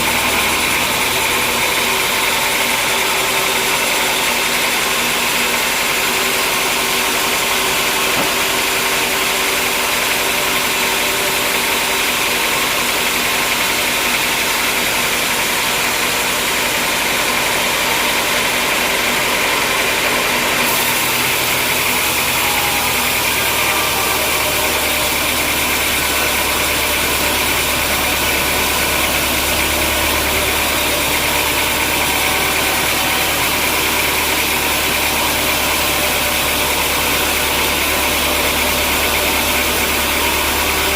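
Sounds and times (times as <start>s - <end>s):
sawmill machinery running: 0.0s - 40.9s
deep steady hum: 20.7s - 40.9s.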